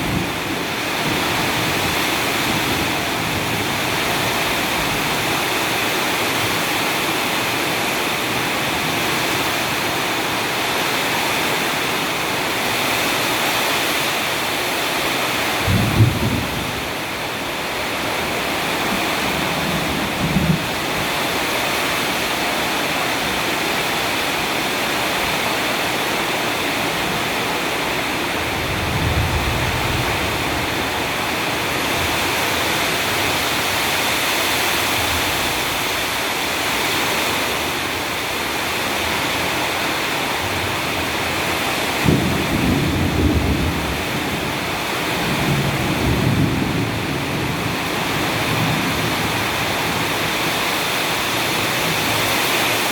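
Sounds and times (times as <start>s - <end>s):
heavy rain pouring: 0.0s - 52.9s
low thunder rumbles: 15.5s - 21.5s, 28.2s - 32.5s, 41.9s - 50.2s.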